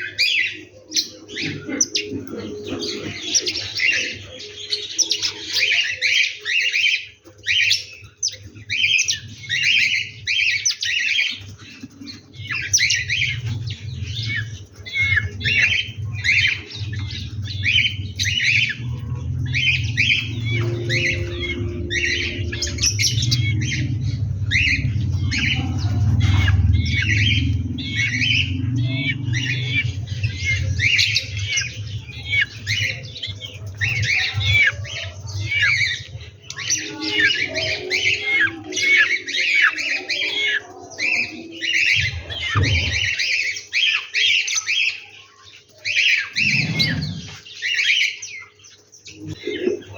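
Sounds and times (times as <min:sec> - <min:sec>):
birds calling rapidly: 0:00.0 - 0:49.9
steady low rumble: 0:12.2 - 0:36.6.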